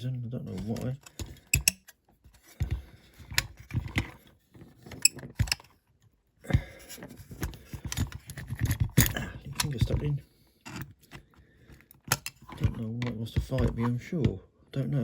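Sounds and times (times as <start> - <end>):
toy parts clicking and scraping: 0.5 - 2.6.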